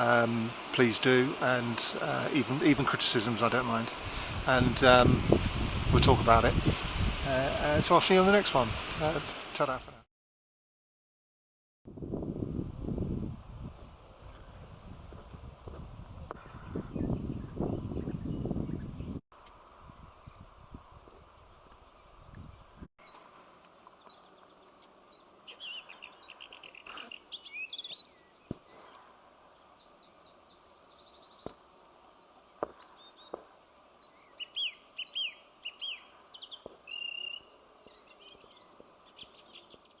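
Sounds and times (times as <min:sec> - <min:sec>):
faint background hiss: 0:00.0 - 0:10.0, 0:19.4 - 0:40.0
wind rumble on microphone: 0:04.0 - 0:07.8, 0:11.9 - 0:22.9
songbirds chirping and trilling: 0:16.2 - 0:19.2, 0:19.9 - 0:40.0.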